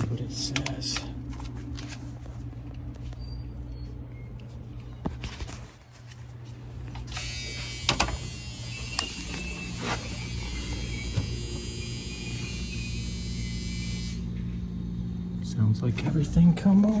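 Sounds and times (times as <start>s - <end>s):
refrigerator humming: 0.0s - 17.0s
refrigerator clicks: 0.4s - 1.1s.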